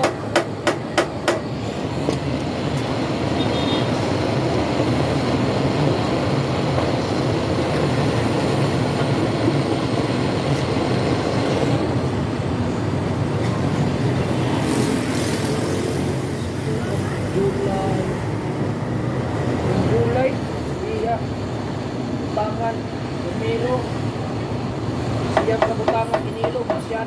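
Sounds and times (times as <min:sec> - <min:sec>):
hammer striking metal: 0:00.0 - 0:01.5.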